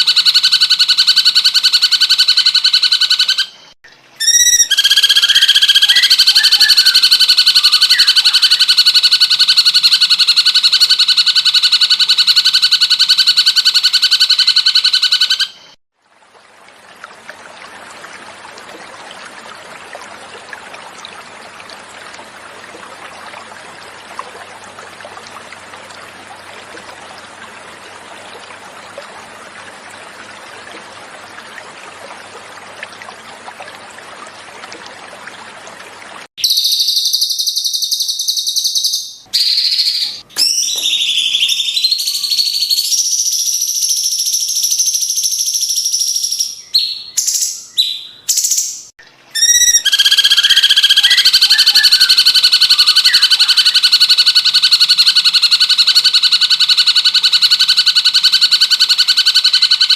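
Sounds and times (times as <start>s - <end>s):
bird buzzing trill call: 4.2s - 15.6s, 49.4s - 59.9s
running water: 16.0s - 36.3s.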